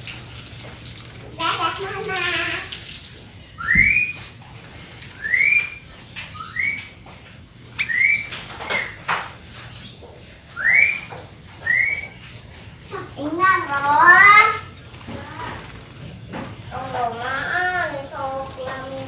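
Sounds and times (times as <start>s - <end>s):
bird whistling rising notes: 3.6s - 4.3s, 5.1s - 7.0s, 7.7s - 9.0s, 10.5s - 12.2s.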